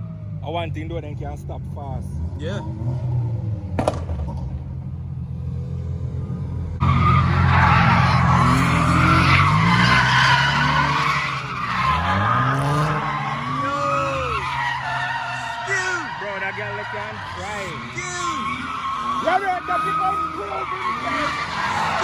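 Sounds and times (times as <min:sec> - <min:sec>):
car engine revving: 0:00.0 - 0:22.0
tyre squealing: 0:06.8 - 0:22.0.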